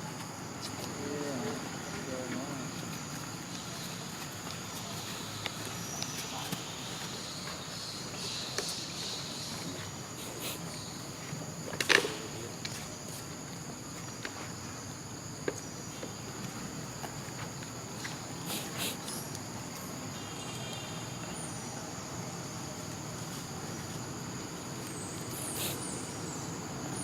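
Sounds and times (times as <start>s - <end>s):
insect drone: 0.0s - 27.0s.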